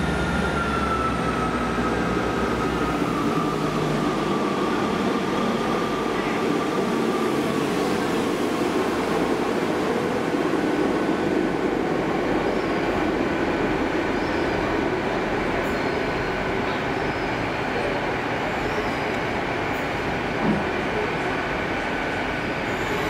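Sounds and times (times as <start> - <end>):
passenger train moving past: 0.0 - 23.0
wheels rumbling on rail: 0.0 - 23.0
faint high wheel squeals: 22.4 - 23.0.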